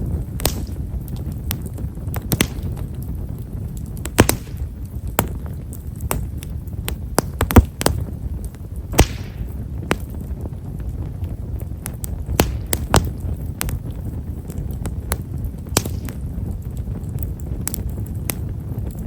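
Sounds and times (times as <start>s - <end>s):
firewood crackling: 0.0s - 19.0s
rush of flames: 0.0s - 19.0s
wood snapping: 0.4s - 0.8s, 2.1s - 2.9s, 4.0s - 8.0s, 9.0s - 10.1s, 12.0s - 13.7s, 15.1s - 16.2s.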